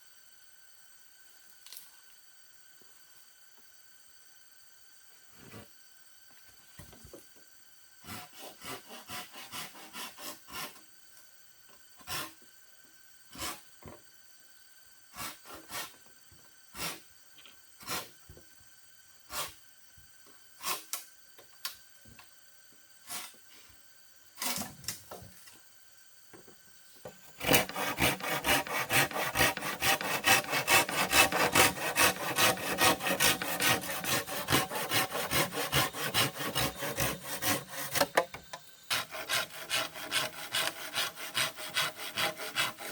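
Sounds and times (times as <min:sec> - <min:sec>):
hand saw sawing wood: 0:08.1 - 0:10.8, 0:12.1 - 0:12.3, 0:27.4 - 0:38.2, 0:38.9 - 0:42.9.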